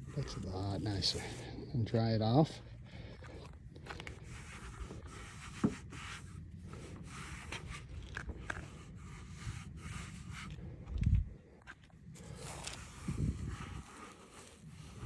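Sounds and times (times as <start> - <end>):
towel rubbing on motorcycle: 12.2 - 15.0.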